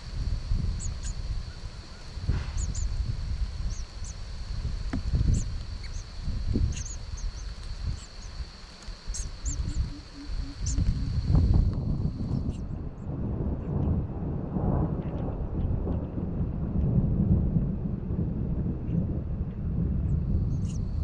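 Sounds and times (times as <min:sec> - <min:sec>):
high insect buzz: 0:00.0 - 0:12.8, 0:20.3 - 0:21.0
wind rumble on microphone: 0:00.0 - 0:21.0.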